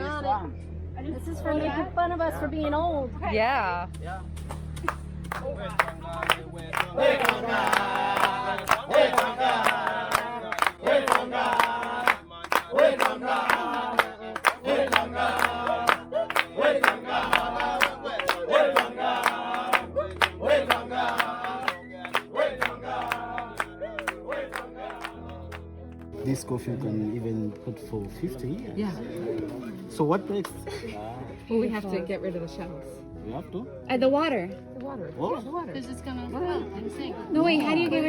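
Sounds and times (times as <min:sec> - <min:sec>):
group singing: 0:05.4 - 0:25.7.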